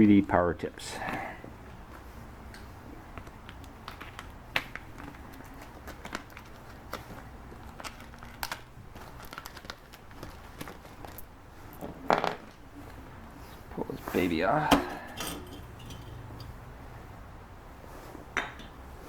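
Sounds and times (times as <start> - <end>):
low steady hum: 13.8 - 17.5.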